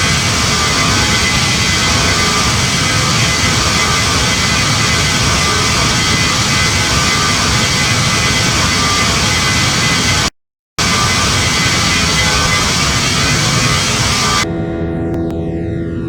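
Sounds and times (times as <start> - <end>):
airflow rushing past jet cabin: 0.0 - 14.5
faint steady whine: 0.0 - 14.5
jet engines humming: 0.0 - 14.5.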